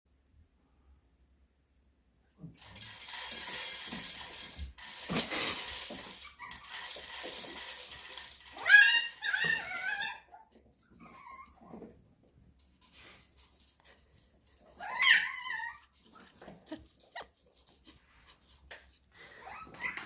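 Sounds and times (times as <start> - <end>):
dry kibble rattling: 2.6 - 10.0, 12.6 - 20.0
puppy crying: 8.5 - 11.8, 14.7 - 18.4, 19.3 - 20.0.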